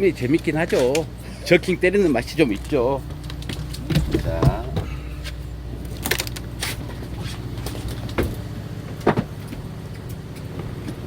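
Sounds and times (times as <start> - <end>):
boat machinery humming: 0.0 - 11.0
sharp clicks and knocks: 2.5 - 10.2.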